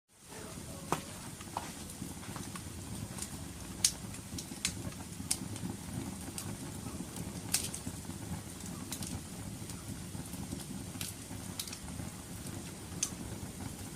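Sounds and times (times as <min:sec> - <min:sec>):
fire rumbling: 0:00.1 - 0:13.9
fire crackling and popping: 0:00.2 - 0:13.9.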